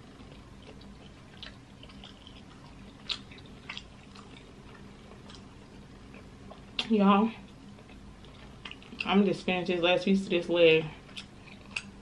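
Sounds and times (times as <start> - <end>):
close-up chewing: 0.0 - 9.2, 11.0 - 12.0
wet mouth clicks: 3.0 - 4.3.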